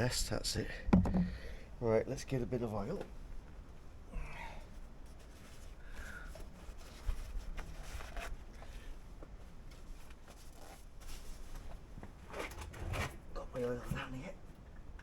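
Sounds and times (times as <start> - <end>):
sharp knock: 0.9 - 1.4
faint handling and shuffling: 4.6 - 15.0.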